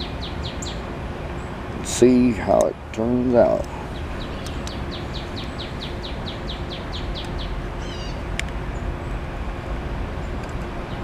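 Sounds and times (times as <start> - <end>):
bird trill: 0.0 - 0.9, 3.8 - 8.9
songbird chirping: 0.0 - 1.6, 3.5 - 9.2.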